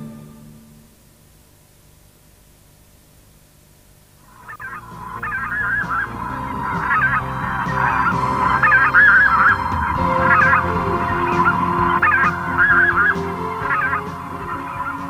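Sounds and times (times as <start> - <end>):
geese honking: 4.3 - 15.0.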